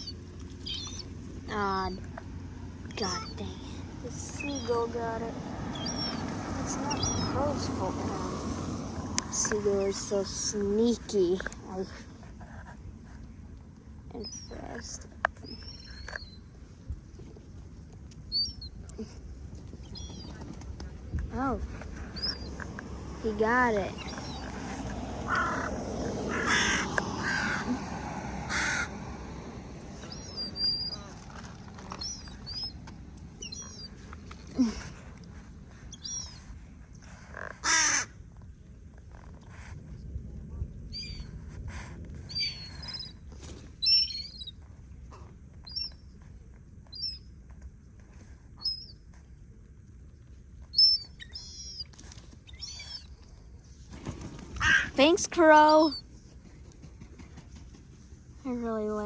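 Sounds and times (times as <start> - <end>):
low steady rumble: 0.0 - 59.0
crow cawing: 25.3 - 27.7, 28.4 - 29.0, 37.6 - 38.1.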